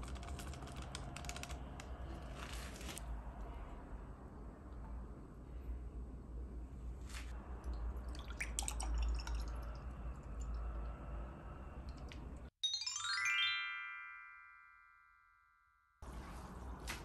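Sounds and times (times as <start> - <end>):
descending bell-like chimes: 12.6 - 15.9.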